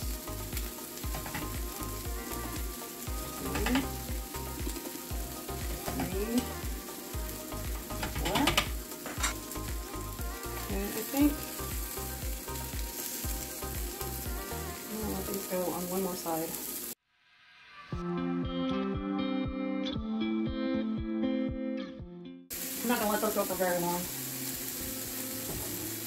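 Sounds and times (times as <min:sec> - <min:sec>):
meatballs sizzling in oil: 0:00.0 - 0:17.0, 0:22.5 - 0:26.0.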